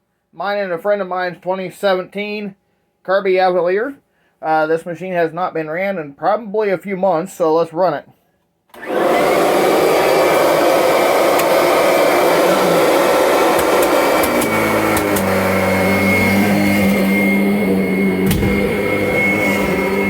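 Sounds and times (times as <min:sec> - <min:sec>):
vacuum cleaner motor whine: 0:08.8 - 0:20.0.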